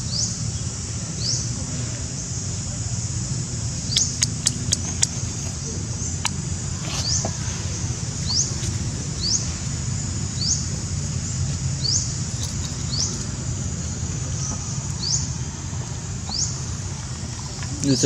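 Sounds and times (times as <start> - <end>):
small animal chirping: 3.9 - 6.4.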